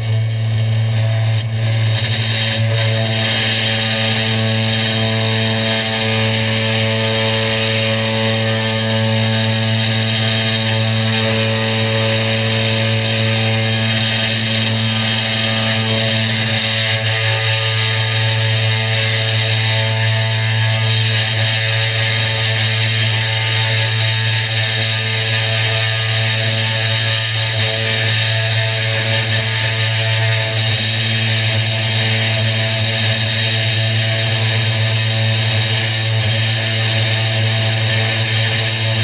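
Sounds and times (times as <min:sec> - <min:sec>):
router spindle motor humming: 0:00.0 - 0:39.0.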